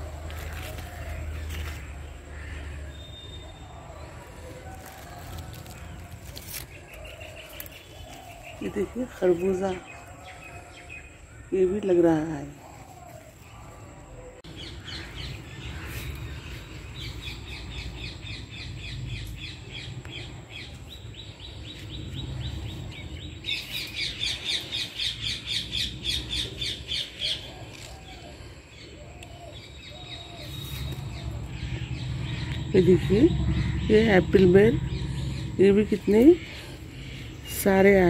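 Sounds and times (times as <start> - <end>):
small bird chirping: 28.8 - 38.0
low steady rumble: 30.0 - 38.0.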